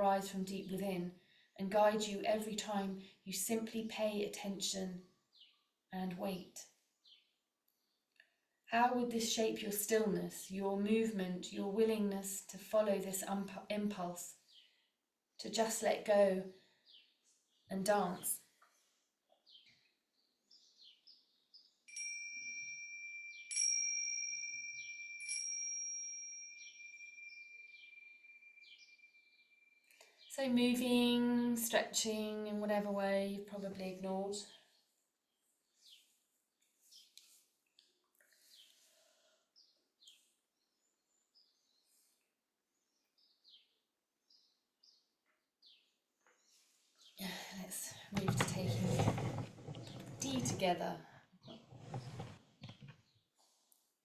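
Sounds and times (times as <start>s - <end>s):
faint birds chirping: 13.1s - 21.9s, 26.6s - 31.7s, 33.5s - 53.7s
meditation chime ringing: 21.9s - 29.8s.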